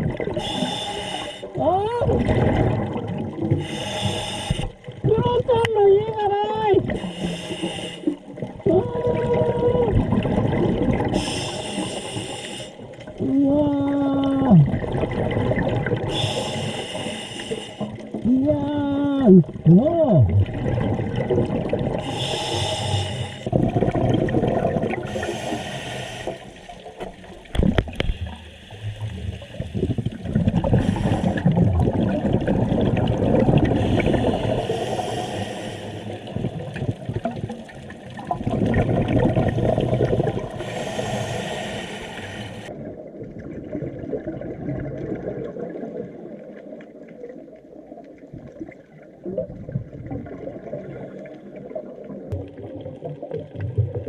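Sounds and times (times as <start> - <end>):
exhaled air bubbling: 0.0 - 5.8, 6.5 - 54.0
regulator inhale hiss: 0.4 - 1.6, 3.6 - 4.8, 7.0 - 8.3, 11.2 - 12.9, 16.1 - 18.0, 22.0 - 23.5, 25.1 - 26.9, 28.0 - 30.0, 30.7 - 31.5, 33.8 - 36.4, 39.9 - 42.7.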